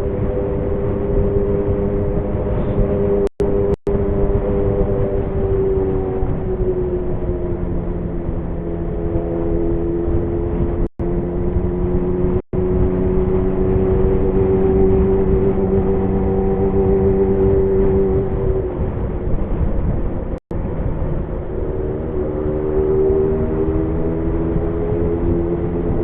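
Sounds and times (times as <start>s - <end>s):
motorcycle engine running: 0.0s - 20.1s.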